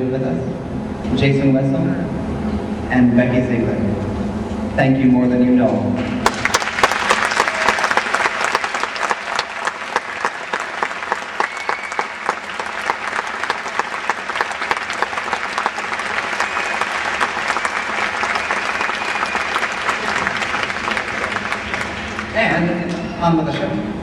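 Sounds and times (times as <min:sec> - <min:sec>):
audience applauding: 0:06.2 - 0:22.4
crowd cheering: 0:06.2 - 0:22.4.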